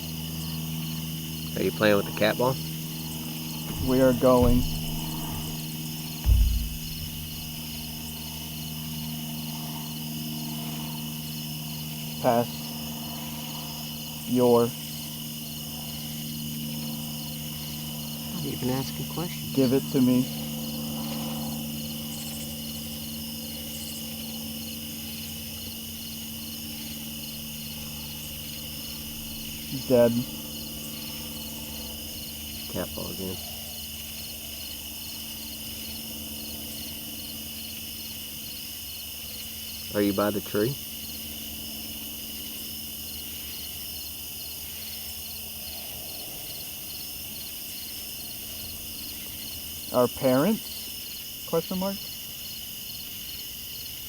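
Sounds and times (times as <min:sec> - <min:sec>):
steady low hum: 0:00.0 - 0:37.1
continuous high insect trill: 0:00.0 - 0:54.0
crickets chirping: 0:00.0 - 0:54.0.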